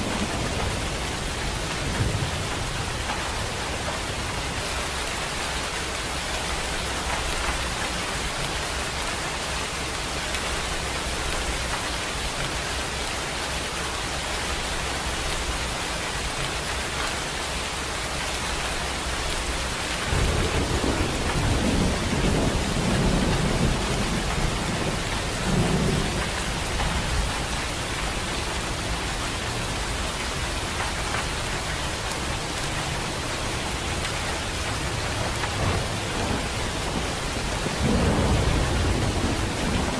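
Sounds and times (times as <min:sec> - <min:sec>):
low rumble of thunder: 0:00.0 - 0:04.7, 0:19.2 - 0:31.0, 0:31.6 - 0:39.9
steady rain hissing: 0:00.0 - 0:39.9.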